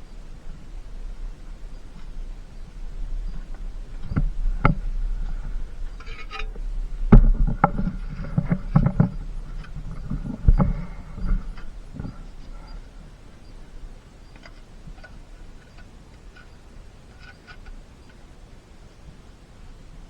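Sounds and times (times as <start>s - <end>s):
faint ringing: 0.0s - 19.8s
knocks and thumps of roof work: 3.5s - 12.6s.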